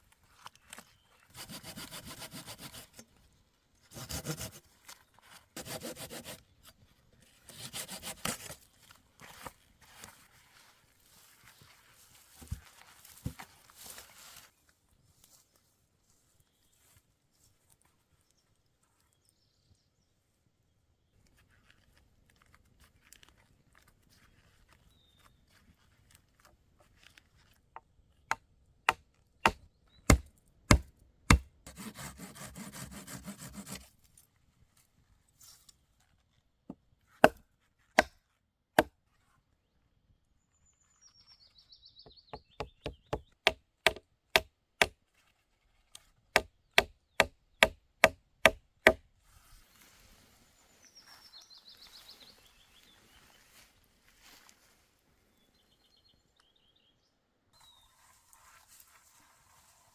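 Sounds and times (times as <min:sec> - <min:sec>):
wood rasping or sawing: 0:01.3 - 0:03.0, 0:03.9 - 0:04.6, 0:05.6 - 0:06.4, 0:07.5 - 0:08.6, 0:29.4 - 0:33.9, 0:42.8 - 0:44.0
tool knocking on wood: 0:30.1 - 0:31.8.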